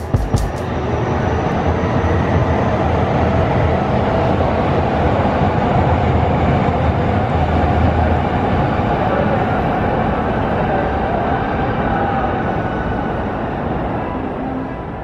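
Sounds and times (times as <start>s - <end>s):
train wheels rumbling on rails: 0.0s - 1.6s.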